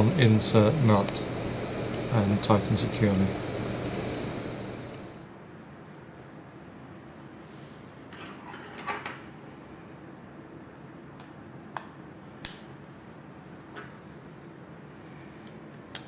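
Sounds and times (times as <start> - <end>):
low steady hum: 0.0 - 5.4.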